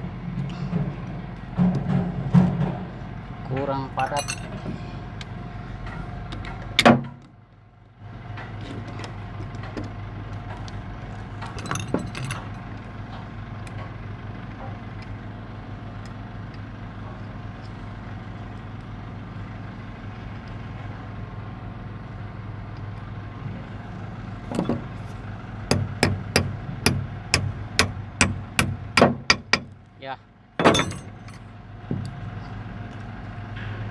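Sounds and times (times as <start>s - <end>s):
low engine hum: 0.0s - 33.9s
metallic clinks: 4.0s - 4.7s, 11.5s - 12.6s, 30.6s - 31.5s
sharp metal knocks: 24.5s - 29.8s, 30.6s - 32.2s.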